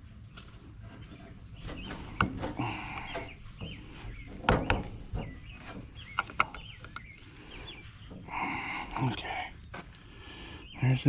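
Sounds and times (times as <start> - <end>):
bird chirping: 0.0 - 11.0
metal tools clicking and knocking: 1.1 - 9.0.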